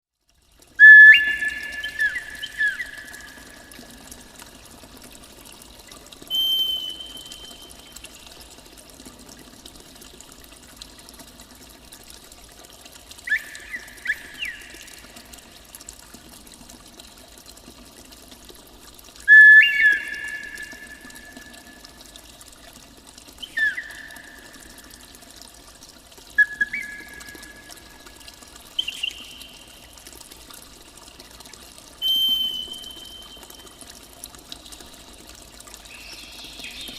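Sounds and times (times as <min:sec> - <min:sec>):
running water: 0:00.1 - 0:36.9
whistled bird calls: 0:00.8 - 0:03.7, 0:06.3 - 0:07.9, 0:13.3 - 0:15.1, 0:19.3 - 0:21.7, 0:23.4 - 0:24.8, 0:26.4 - 0:28.1, 0:28.8 - 0:29.8, 0:32.0 - 0:33.6, 0:35.9 - 0:36.9.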